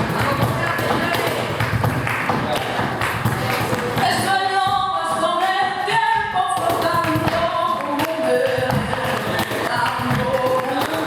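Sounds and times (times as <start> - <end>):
percussive taps: 0.0 - 11.0
person singing a cappella: 4.0 - 11.0.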